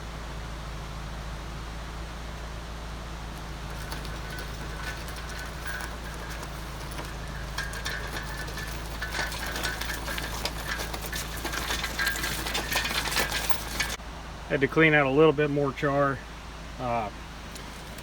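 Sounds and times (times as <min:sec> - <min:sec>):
steady low hum: 0:00.0 - 0:18.0
hand tools clicking on metal: 0:03.4 - 0:14.0.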